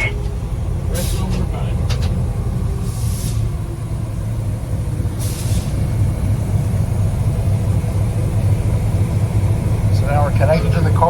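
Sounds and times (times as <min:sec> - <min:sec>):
locomotive engine drone: 0:00.0 - 0:11.0
air brake hiss: 0:02.8 - 0:03.5, 0:05.2 - 0:05.8.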